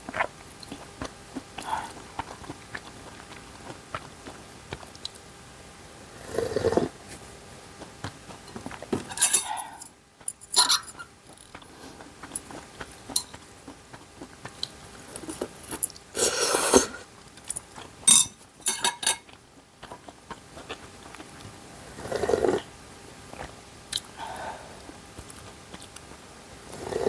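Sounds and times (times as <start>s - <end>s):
chewing: 0.0s - 27.0s
utensils clicking against dishes: 8.5s - 11.5s, 13.1s - 13.4s, 15.3s - 19.3s.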